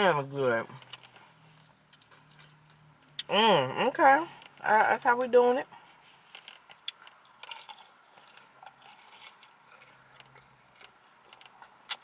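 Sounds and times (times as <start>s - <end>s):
person chewing and crunching food: 0.8s - 3.3s, 6.0s - 12.0s.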